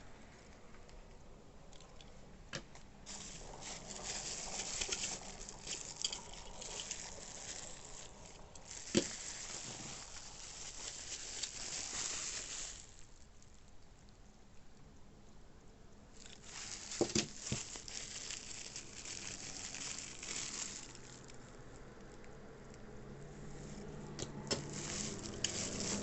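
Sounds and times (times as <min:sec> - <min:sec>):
packaging rustling and crinkling: 0:03.0 - 0:13.6, 0:16.2 - 0:21.5, 0:24.5 - 0:26.0.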